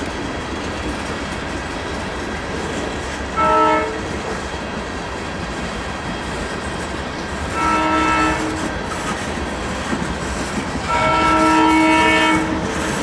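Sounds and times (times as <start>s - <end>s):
freight train rumbling past: 0.0s - 13.0s
wheels clacking on rail joints: 0.0s - 13.0s
train horn blasts: 3.4s - 4.1s, 7.5s - 8.7s, 10.8s - 13.0s.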